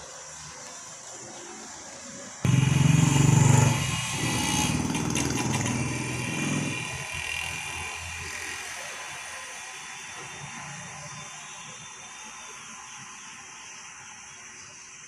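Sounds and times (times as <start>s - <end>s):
vehicle engine running: 2.4s - 8.3s.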